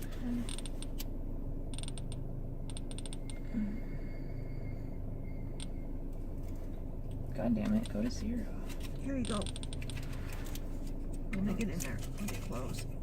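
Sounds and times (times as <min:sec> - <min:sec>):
low steady hum: 0:00.0 - 0:13.0
timer wheel ticking: 0:01.7 - 0:03.4.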